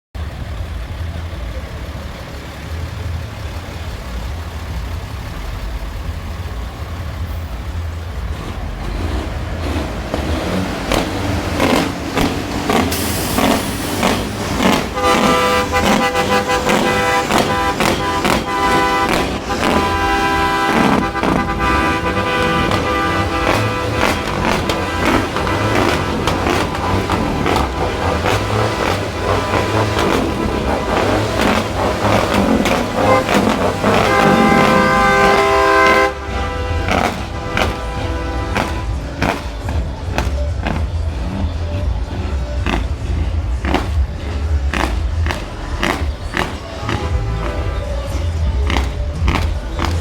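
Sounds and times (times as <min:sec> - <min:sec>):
heavy trucks rumbling: 0:00.1 - 0:50.0
loud rhythmic music: 0:10.3 - 0:50.0.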